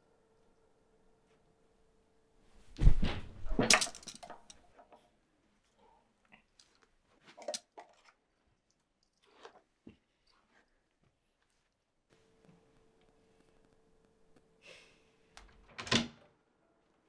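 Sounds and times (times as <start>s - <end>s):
heavy thud on floor: 2.7s - 3.6s.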